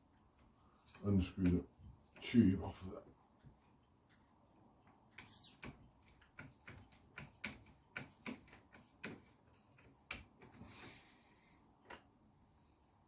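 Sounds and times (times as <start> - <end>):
light clicks and taps: 0.1 - 2.4, 3.0 - 10.6.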